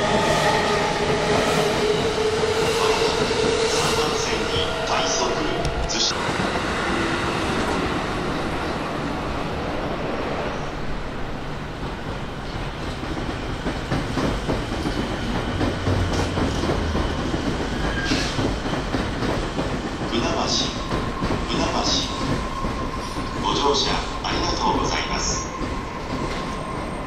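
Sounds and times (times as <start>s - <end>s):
train rumble: 0.0s - 27.0s
train wheels clicking over rail joints: 11.9s - 24.8s.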